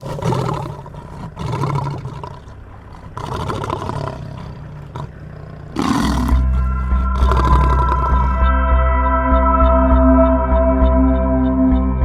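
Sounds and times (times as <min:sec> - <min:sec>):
lion roaring: 0:00.0 - 0:08.4.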